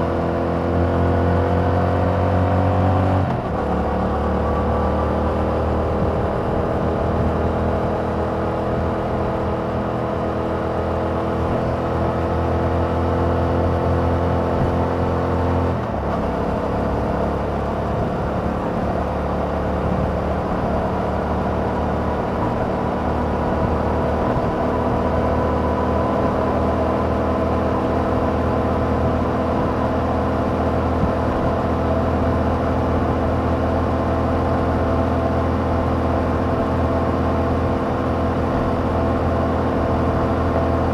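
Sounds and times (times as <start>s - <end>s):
motorcycle engine: 11.4s - 40.9s.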